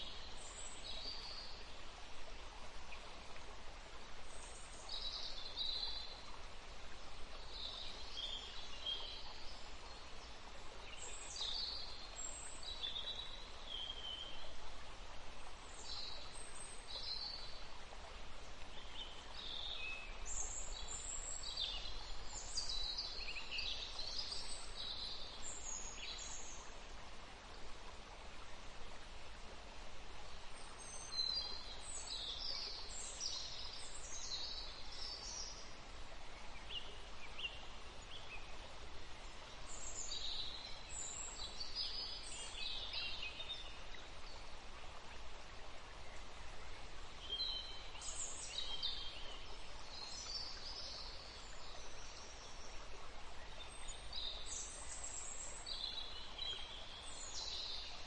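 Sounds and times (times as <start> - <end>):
steady background hiss: 0.0 - 58.0.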